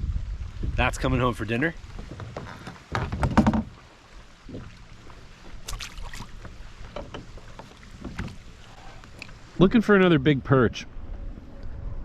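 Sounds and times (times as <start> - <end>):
gear knocking and clicking in kayak: 1.9 - 3.8.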